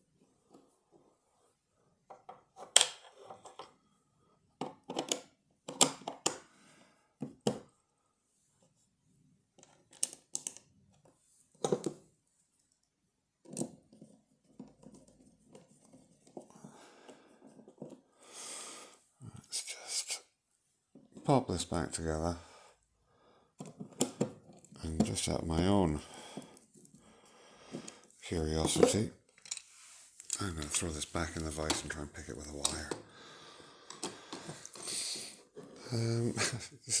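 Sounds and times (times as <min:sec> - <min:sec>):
small metal parts clicking: 0:29.4 - 0:30.8.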